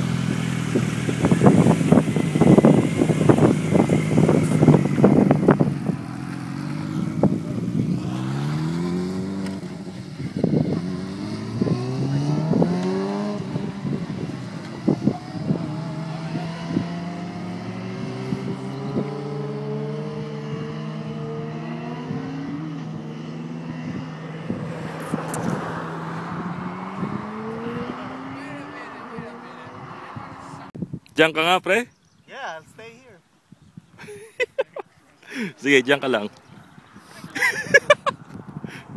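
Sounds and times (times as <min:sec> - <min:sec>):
motorcycle engine accelerating: 0:00.0 - 0:30.8.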